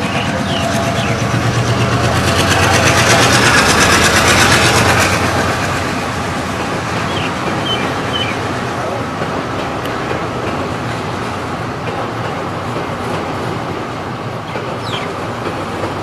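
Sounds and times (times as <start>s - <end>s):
low engine hum: 0.0s - 11.4s
train wheels rushing on rails: 0.0s - 16.0s.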